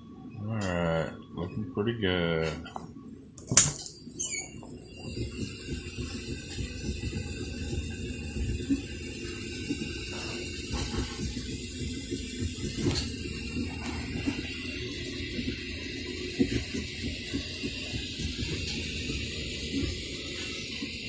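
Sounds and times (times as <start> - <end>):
three d printer whirring: 4.5 - 21.0.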